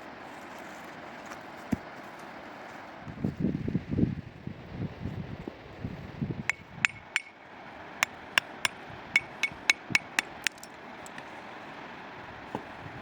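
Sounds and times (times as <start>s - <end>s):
hammer ringing clinks: 9.2s - 11.2s.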